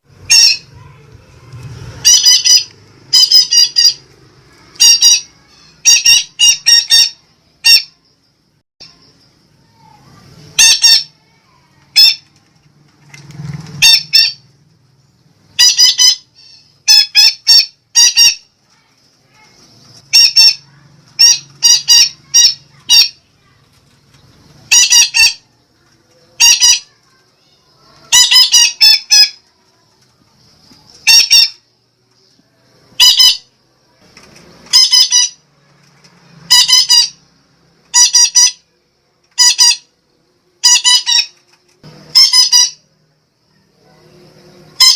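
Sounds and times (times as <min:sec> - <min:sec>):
parakeet squawking: 0:00.2 - 0:01.0, 0:01.9 - 0:08.0, 0:10.5 - 0:11.3, 0:11.9 - 0:12.2, 0:13.8 - 0:14.4, 0:15.5 - 0:18.5, 0:20.0 - 0:23.3, 0:24.6 - 0:25.4, 0:26.3 - 0:27.0, 0:28.0 - 0:29.4, 0:31.0 - 0:31.6, 0:33.0 - 0:33.5, 0:34.7 - 0:35.4, 0:36.5 - 0:37.3, 0:37.9 - 0:38.7, 0:39.3 - 0:39.9, 0:40.6 - 0:41.4, 0:42.1 - 0:42.9.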